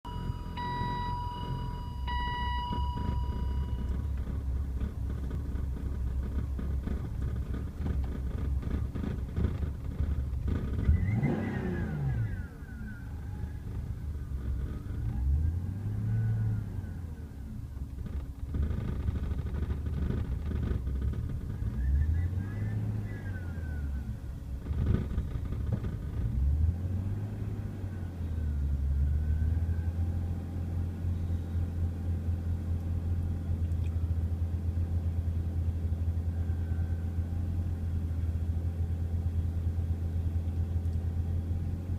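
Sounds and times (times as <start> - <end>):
car engine idling roughly: 0.2 - 10.9
engine revving: 7.8 - 17.0.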